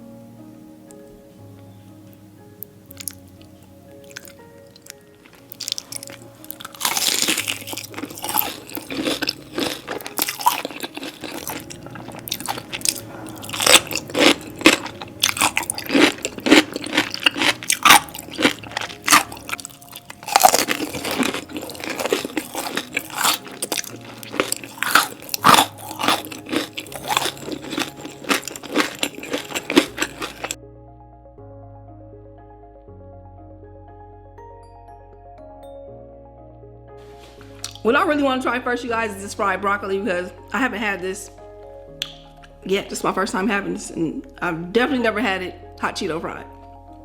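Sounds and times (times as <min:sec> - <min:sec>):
soft background music: 0:00.0 - 0:47.0
crunchy chewing: 0:02.9 - 0:30.6, 0:37.5 - 0:37.8.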